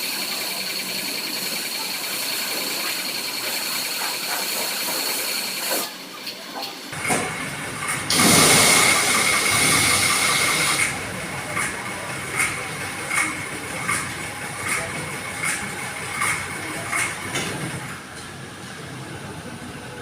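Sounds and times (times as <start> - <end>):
pressure washer spray hiss: 8.1 - 10.9.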